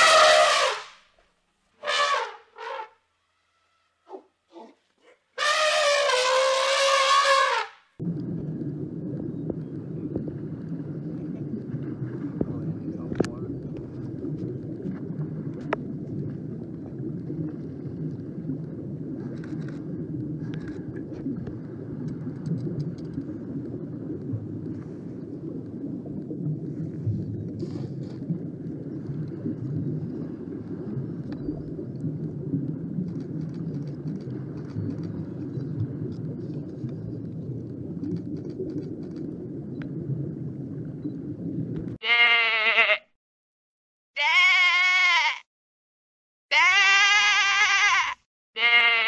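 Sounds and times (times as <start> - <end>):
wind: 0.0 - 43.1, 44.2 - 45.4, 46.5 - 49.0
sheep bleating: 42.0 - 43.0, 44.2 - 45.4, 46.5 - 49.0.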